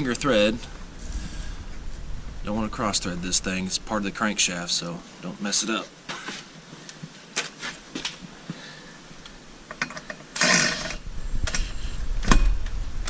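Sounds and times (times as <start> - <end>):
low rumble: 0.0 - 4.8, 11.0 - 13.0.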